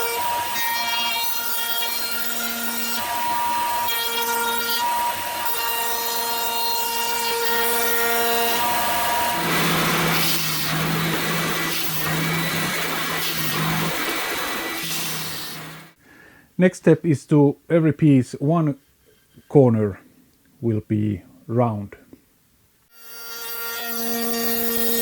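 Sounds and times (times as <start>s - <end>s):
electric router whining: 0.0s - 16.0s
lower-pitched machine noise: 7.0s - 16.0s.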